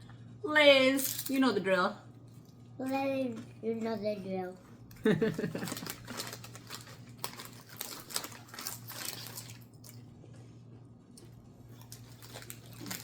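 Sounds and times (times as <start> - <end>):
potato chips crunching: 4.9 - 10.1, 11.2 - 13.0.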